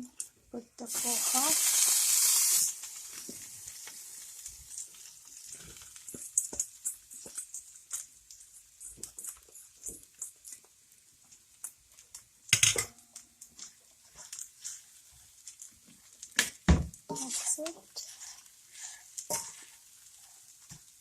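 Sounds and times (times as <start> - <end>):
faint sizzle: 0.0 - 21.0
spoon scraping frying pan: 17.1 - 19.9.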